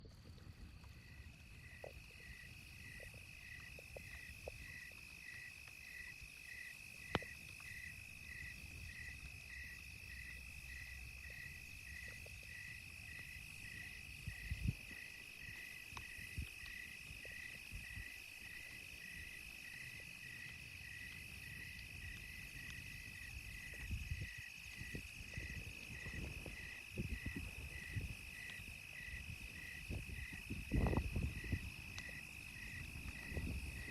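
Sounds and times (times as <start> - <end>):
campfire pops: 0.0 - 33.9
insect chirping in pulses: 0.0 - 33.9
high insect drone: 0.9 - 33.9.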